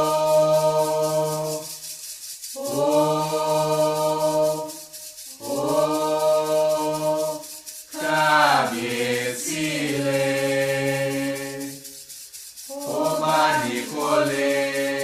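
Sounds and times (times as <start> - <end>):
person chanting long notes: 12.7 - 15.0.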